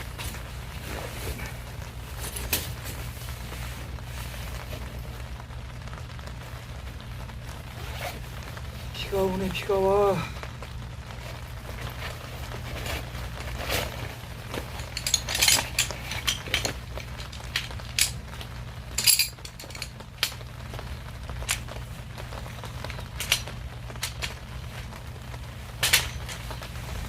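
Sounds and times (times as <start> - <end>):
steady low hum: 0.0 - 27.0
kitchenware clinking: 19.0 - 19.8.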